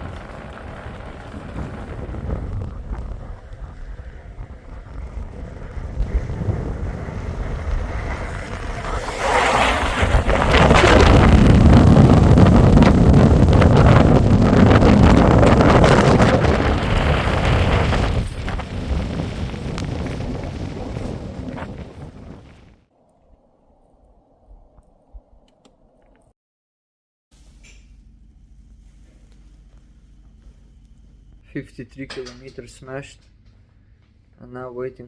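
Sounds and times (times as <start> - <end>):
wind buffeting microphone: 0.0 - 26.3.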